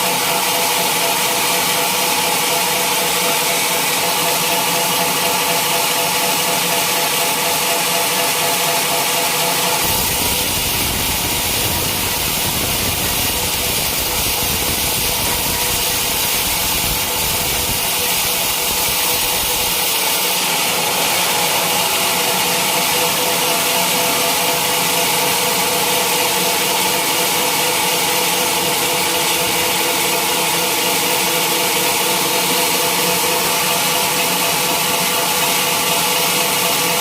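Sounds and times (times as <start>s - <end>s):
band saw motor humming: 0.0s - 26.0s.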